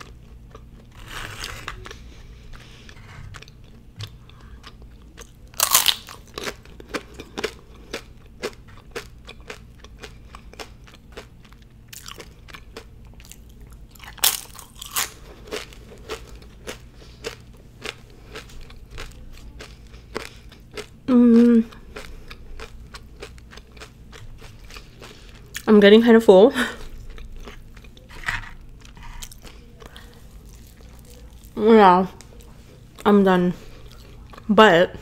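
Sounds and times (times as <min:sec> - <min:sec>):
tortilla chips crunching: 0:00.0 - 0:02.7, 0:04.6 - 0:21.0, 0:26.8 - 0:31.6.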